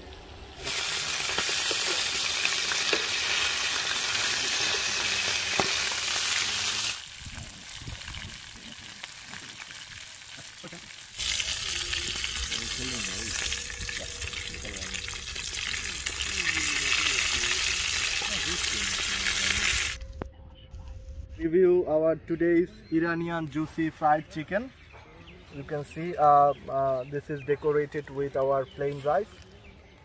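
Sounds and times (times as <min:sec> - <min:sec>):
chicken sizzling in hot oil: 0:00.0 - 0:20.0.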